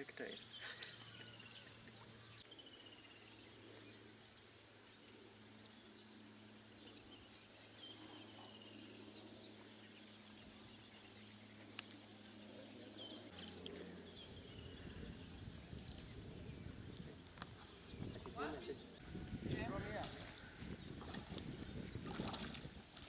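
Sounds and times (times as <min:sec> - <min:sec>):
low steady hum: 0:00.0 - 0:23.0
bird chirps: 0:00.3 - 0:03.4
rough low rumble: 0:08.0 - 0:22.8.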